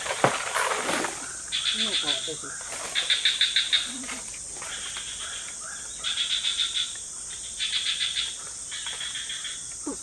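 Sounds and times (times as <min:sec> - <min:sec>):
pulsed insect chirps: 0:01.0 - 0:10.0.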